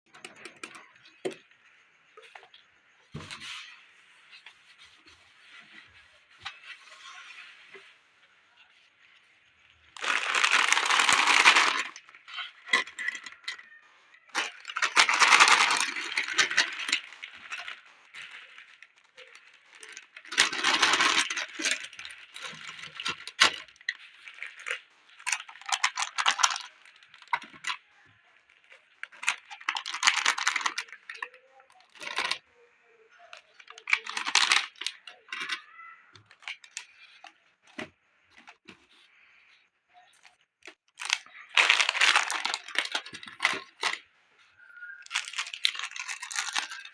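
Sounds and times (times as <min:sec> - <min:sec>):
candies rattling into a drawer: 0:09.9 - 0:27.8, 0:28.4 - 0:32.4, 0:33.3 - 0:38.7, 0:40.9 - 0:44.0, 0:44.6 - 0:46.9.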